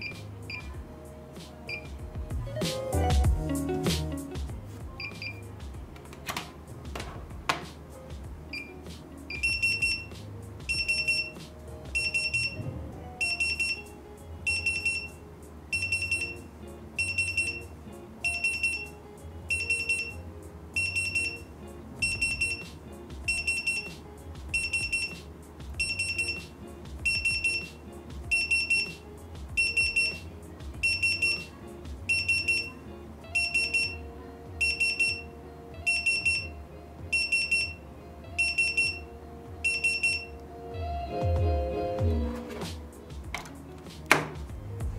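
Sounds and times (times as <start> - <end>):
pager beeping: 0.0 - 0.7, 1.7 - 2.0, 5.0 - 5.4, 8.5 - 10.1, 10.7 - 12.6, 13.2 - 13.9, 14.5 - 18.9, 19.5 - 20.2, 20.8 - 22.7, 23.3 - 23.9, 24.5 - 25.2, 25.8 - 29.0, 29.6 - 30.2, 30.8 - 31.5, 32.1 - 37.8, 38.4 - 40.4.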